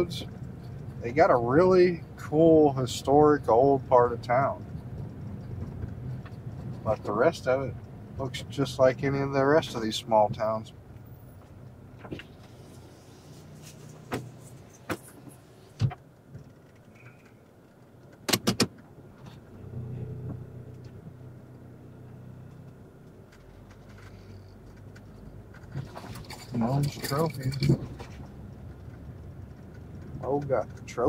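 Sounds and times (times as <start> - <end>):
car engine idling: 0.0 - 31.0
sharp clicks and knocks: 4.2 - 8.3, 14.0 - 19.5, 22.5 - 31.0.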